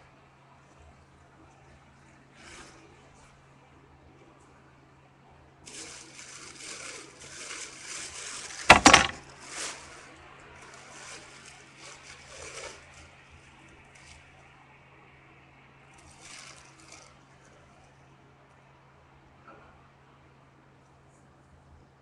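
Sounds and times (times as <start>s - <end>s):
faint steady hum: 0.0s - 22.0s
shoe packaging rustling: 5.7s - 13.1s
sharp crinkle or knock: 5.8s - 10.0s.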